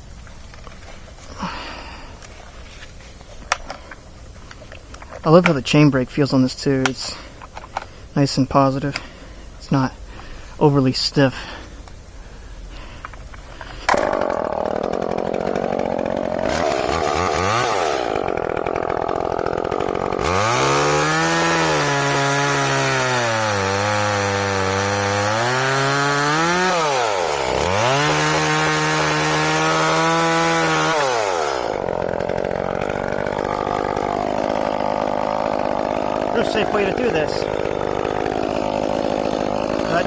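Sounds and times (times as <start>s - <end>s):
chainsaw cutting wood: 12.8s - 40.0s.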